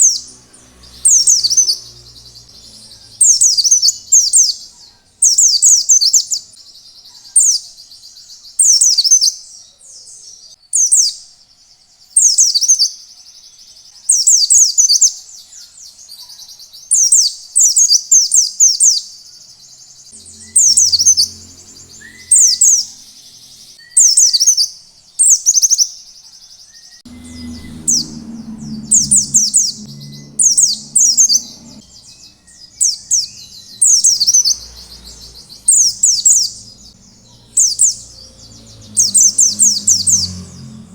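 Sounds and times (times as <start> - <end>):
bird twittering: 0.0 - 7.6, 20.1 - 26.0, 26.8 - 40.4.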